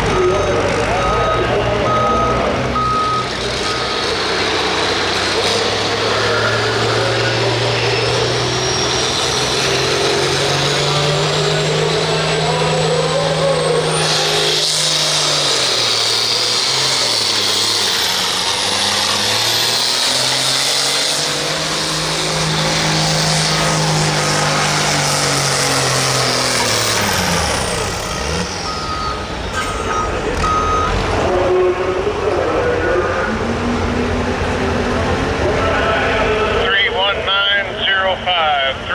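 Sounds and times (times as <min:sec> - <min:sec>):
diesel tractor engine at full power: 0:00.0 - 0:38.9
high turbo whine: 0:00.0 - 0:38.9
short beeps: 0:00.1 - 0:03.9, 0:28.7 - 0:31.0.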